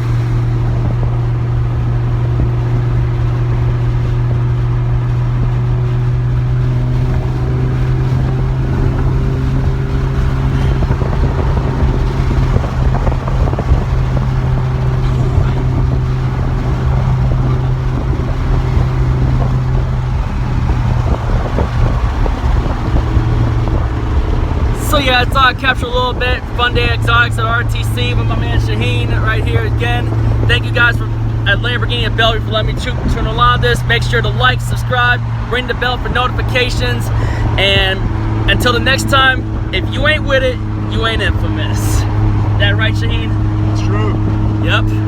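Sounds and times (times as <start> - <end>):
wind noise: 0.0 - 34.4
car engine droning: 0.0 - 45.0
road noise: 0.0 - 45.0.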